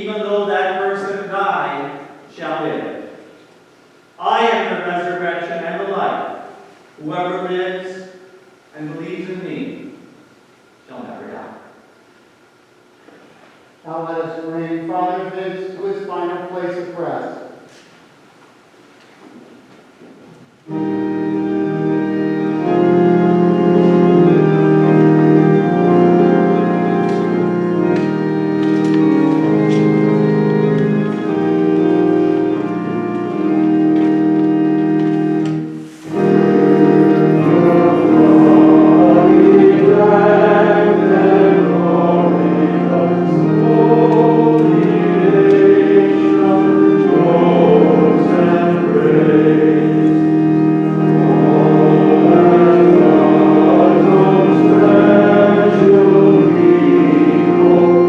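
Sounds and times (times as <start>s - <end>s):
organ playing sustained chords: 0.0s - 13.0s, 13.8s - 18.9s, 20.4s - 58.0s
choir singing a hymn: 20.7s - 58.0s.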